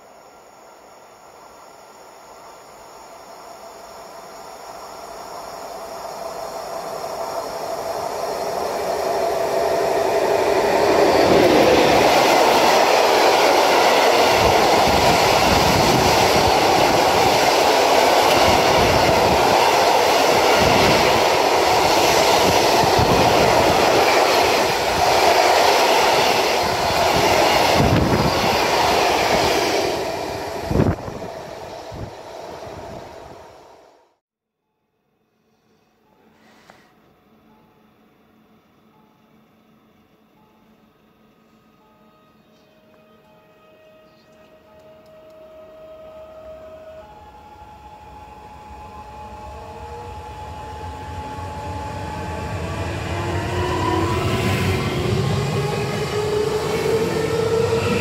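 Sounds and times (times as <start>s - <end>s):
freight train passing: 0.0s - 34.2s, 37.3s - 58.0s.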